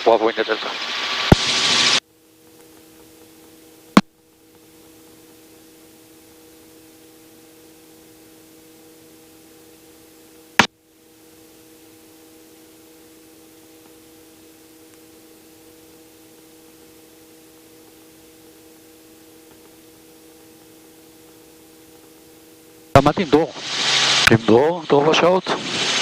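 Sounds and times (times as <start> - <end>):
electrical hiss with low hum: 0.0 - 26.0.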